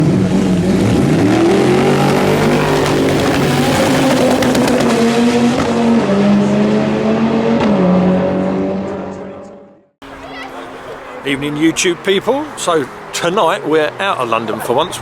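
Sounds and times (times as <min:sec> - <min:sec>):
car engine revving hard: 0:00.0 - 0:09.6.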